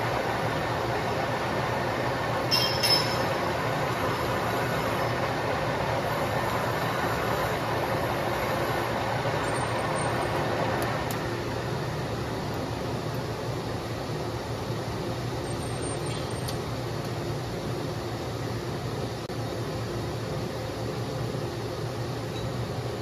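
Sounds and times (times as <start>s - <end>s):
lathe running: 0.0s - 11.2s
sharp metallic clinks: 2.5s - 3.4s.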